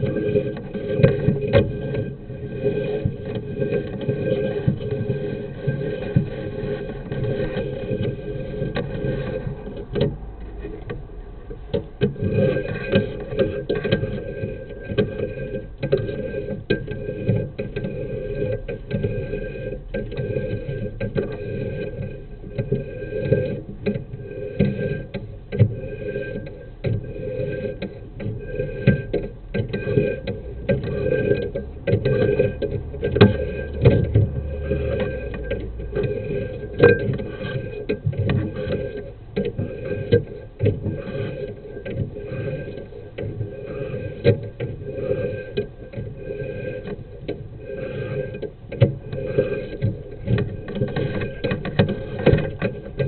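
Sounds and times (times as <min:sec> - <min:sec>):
steady hum: 0:00.0 - 0:53.0
irregular clicks and knocks: 0:19.8 - 0:53.0
camera cable knocking and scraping in pipe: 0:20.0 - 0:53.0.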